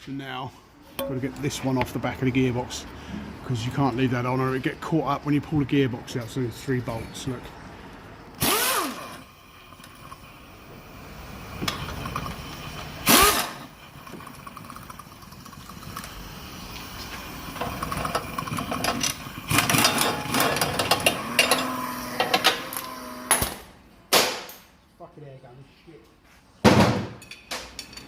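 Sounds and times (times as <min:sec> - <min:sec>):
pneumatic impact wrench hammering: 0:08.4 - 0:09.4, 0:11.4 - 0:14.2, 0:16.7 - 0:23.7.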